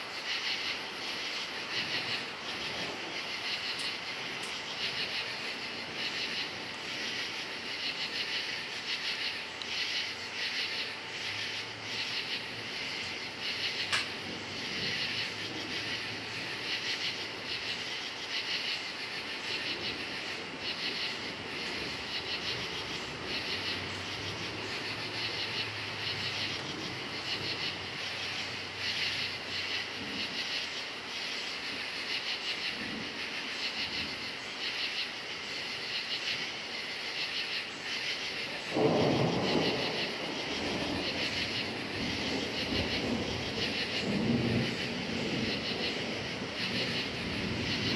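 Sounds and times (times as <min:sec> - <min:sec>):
crickets chirping: 0:00.0 - 0:47.9
distant thunder rumbling: 0:11.5 - 0:17.4, 0:38.4 - 0:47.9.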